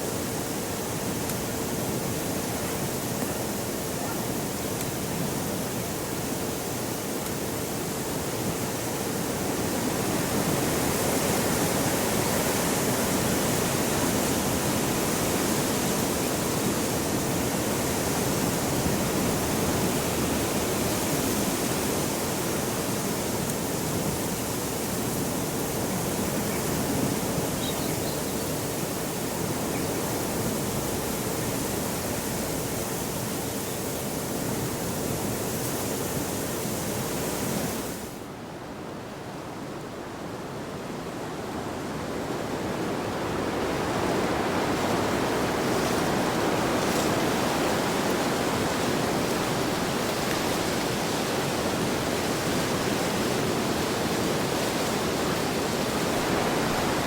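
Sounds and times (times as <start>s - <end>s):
heavy wind rushing: 41.8s - 57.0s.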